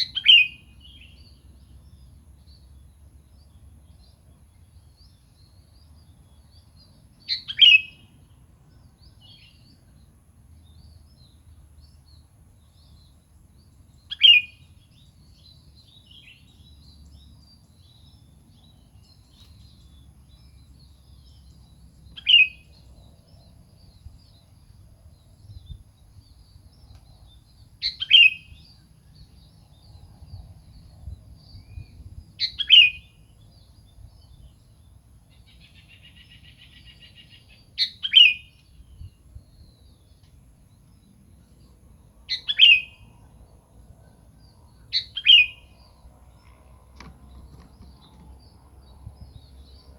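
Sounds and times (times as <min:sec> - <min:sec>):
bird calling sharp chirps: 0:27.8 - 0:28.8, 0:35.4 - 0:38.7, 0:42.3 - 0:43.1, 0:44.9 - 0:45.9.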